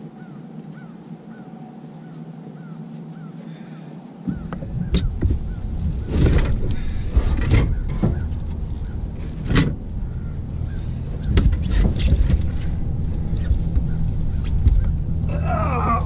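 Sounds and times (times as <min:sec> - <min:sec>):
outboard motor running: 0:04.3 - 0:16.0.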